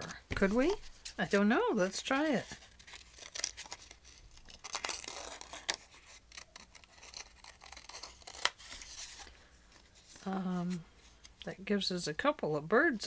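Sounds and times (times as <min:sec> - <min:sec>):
paper rustling: 0:00.0 - 0:11.3
scissors snipping paper: 0:04.6 - 0:08.8.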